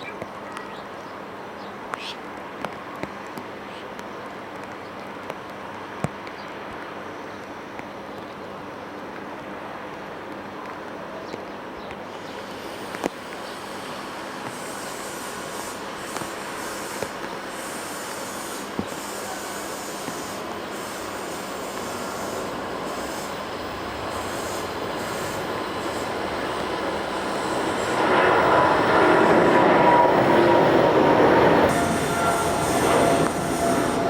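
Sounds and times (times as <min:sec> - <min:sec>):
jet engine roar: 0:12.1 - 0:34.0.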